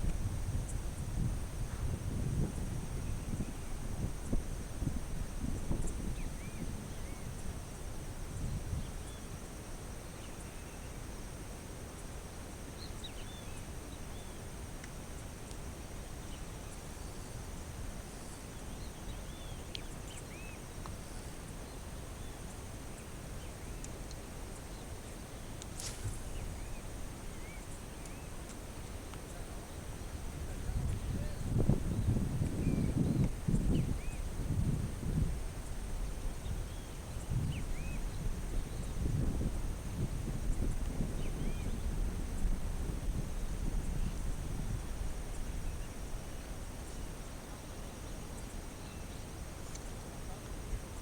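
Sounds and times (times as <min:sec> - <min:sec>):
wind rumble: 0:30.1 - 0:45.8.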